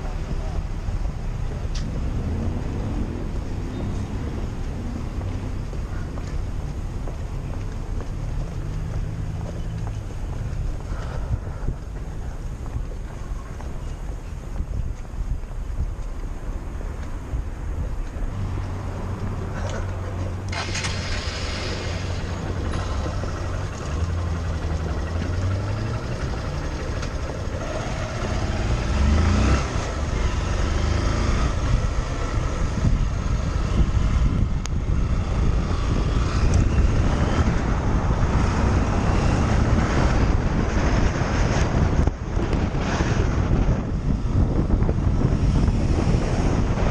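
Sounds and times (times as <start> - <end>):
wind on microphone: 0.0 - 46.9
motorcycle engine running: 22.5 - 29.0.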